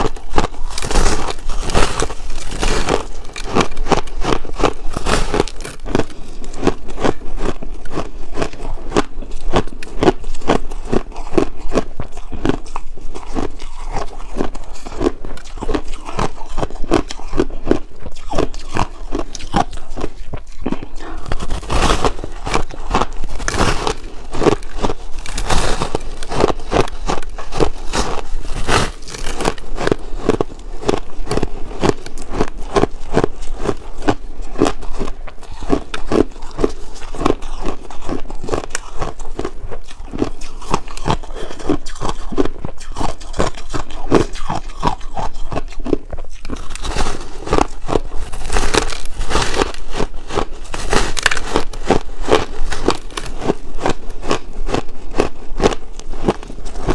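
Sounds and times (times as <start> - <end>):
ice being crunched and chewed: 0.0 - 56.9.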